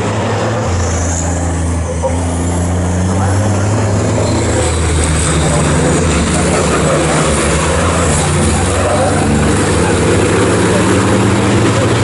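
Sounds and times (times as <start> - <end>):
race truck engines droning: 0.0 - 12.0.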